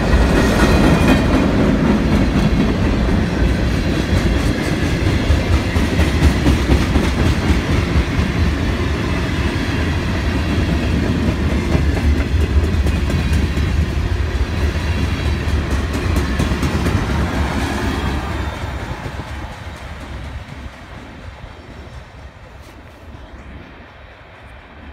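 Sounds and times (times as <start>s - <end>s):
freight train rolling past: 0.0s - 24.9s
wheels clacking over rail joints: 10.6s - 21.6s.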